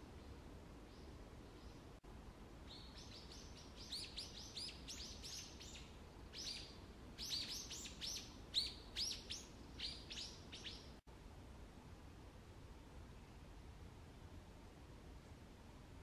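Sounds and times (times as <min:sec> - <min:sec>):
wild birds chirping: 0:02.7 - 0:11.0.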